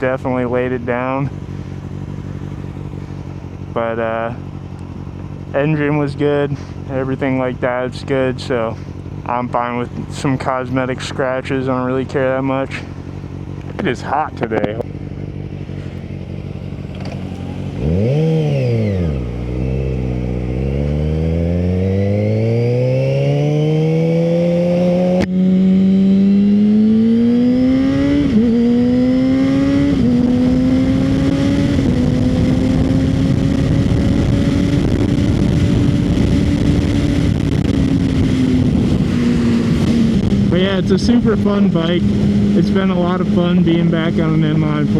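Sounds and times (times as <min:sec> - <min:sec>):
motorcycle engine revving: 0:00.0 - 0:44.9
gear upshifts: 0:12.7 - 0:26.4, 0:27.0 - 0:44.9.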